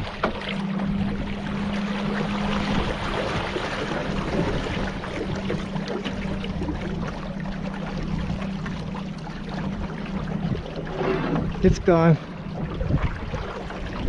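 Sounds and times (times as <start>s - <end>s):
motorboat motor hum: 0.0s - 14.0s
rushing water: 0.0s - 14.0s
wind noise: 12.5s - 14.0s.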